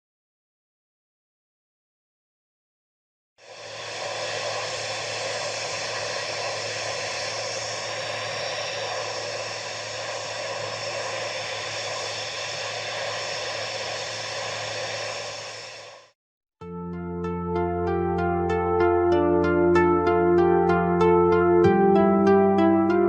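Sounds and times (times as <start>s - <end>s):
steady rushing drone: 3.4s - 16.1s.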